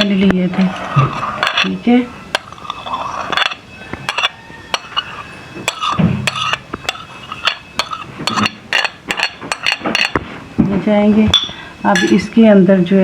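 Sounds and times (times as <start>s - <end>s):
spoon scraping food: 0.0s - 10.3s
metal spoon clinking on bowl: 1.4s - 10.2s, 11.4s - 12.3s.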